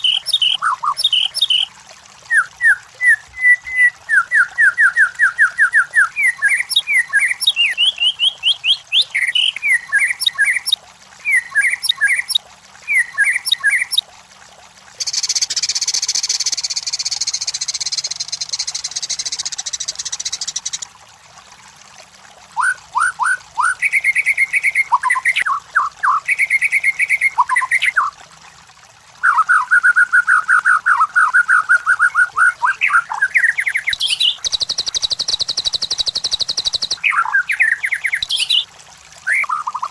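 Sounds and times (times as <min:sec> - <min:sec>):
bird singing whistled notes: 0:02.3 - 0:14.0, 0:15.0 - 0:20.8, 0:29.3 - 0:38.6.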